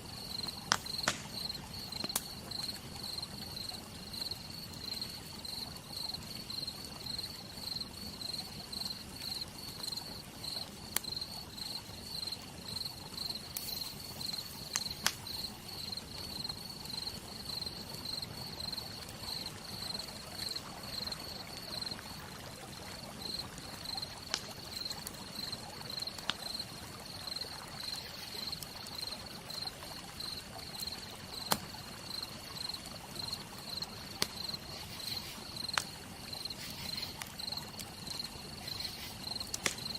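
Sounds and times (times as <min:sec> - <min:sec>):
campfire crackling and popping: 0:00.0 - 0:39.9
insect chirping: 0:00.2 - 0:22.2, 0:22.8 - 0:39.9
rain hissing: 0:12.8 - 0:22.3.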